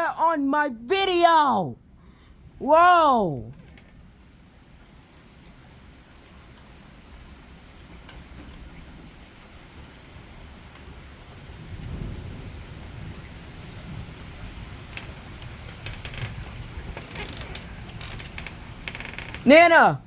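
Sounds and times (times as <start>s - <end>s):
raindrops tapping near microphone: 0.0s - 20.0s
steady rain falling: 0.0s - 20.0s
low rumble of thunder: 3.5s - 19.5s.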